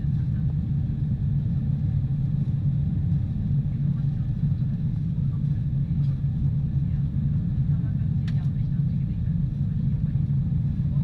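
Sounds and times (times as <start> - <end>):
jetliner low rumble: 0.0 - 11.0.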